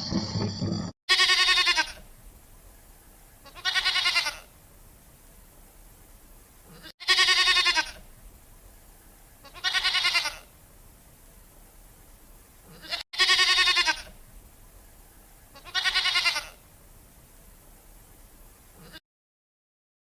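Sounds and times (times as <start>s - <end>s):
goat bleating: 1.1s - 2.0s, 3.4s - 4.5s, 6.7s - 8.0s, 9.4s - 10.5s, 12.7s - 14.1s, 15.5s - 16.6s, 18.8s - 19.0s.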